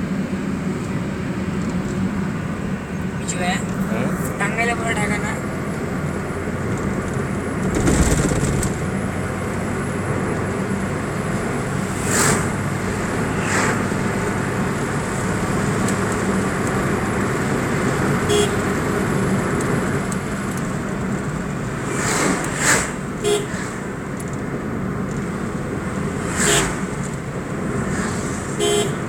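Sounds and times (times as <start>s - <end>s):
road traffic: 0.0s - 29.0s.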